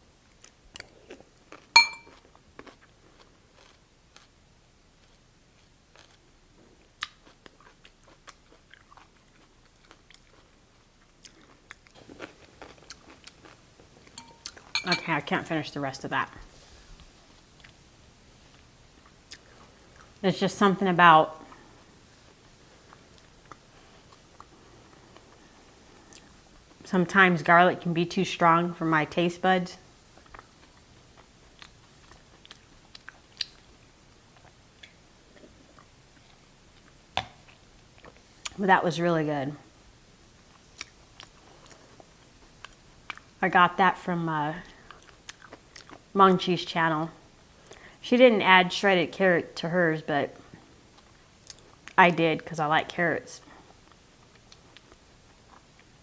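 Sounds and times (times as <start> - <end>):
crunchy chewing: 0.4 - 4.3, 5.0 - 14.7, 30.2 - 38.6, 44.8 - 46.0.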